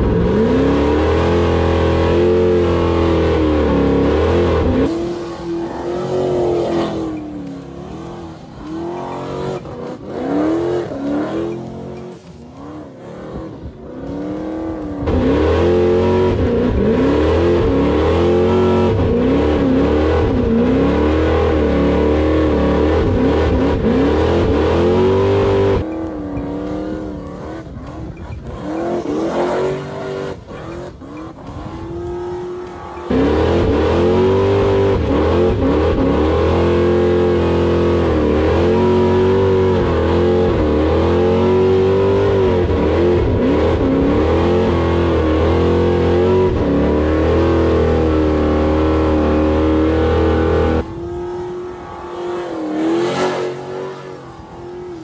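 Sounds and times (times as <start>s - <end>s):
car engine revving hard: 0.0s - 55.0s.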